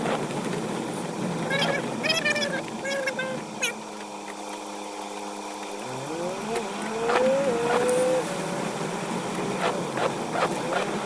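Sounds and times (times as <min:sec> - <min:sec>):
heavy rain on windshield: 0:00.0 - 0:04.0
vehicle engine accelerating: 0:05.6 - 0:11.0.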